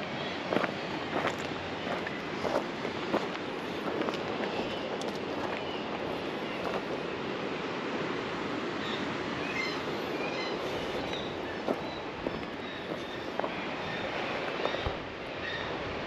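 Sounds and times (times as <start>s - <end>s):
wind rushing over microphone: 0.0s - 16.0s
faint high bird calls: 8.8s - 15.8s.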